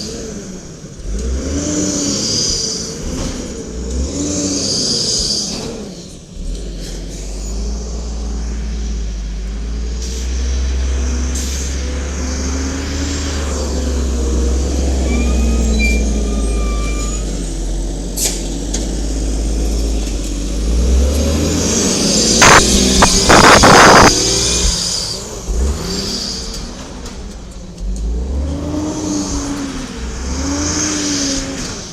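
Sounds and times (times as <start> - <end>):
garbage truck engine rumbling: 0.0 - 31.9
high squeal: 7.1 - 17.8, 21.4 - 27.1.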